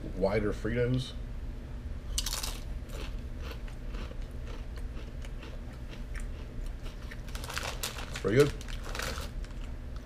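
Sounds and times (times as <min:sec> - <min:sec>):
chewing crunches: 0:02.1 - 0:09.8
corn chip bitten with crunch: 0:02.1 - 0:09.8.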